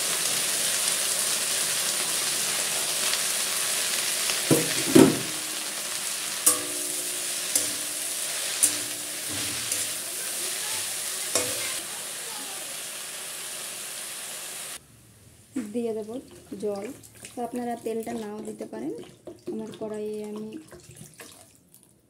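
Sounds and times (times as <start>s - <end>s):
leaves sizzling in hot oil: 0.0s - 14.8s
metal spatula knocking and scraping pan: 4.5s - 5.5s, 6.4s - 10.1s, 11.3s - 11.8s.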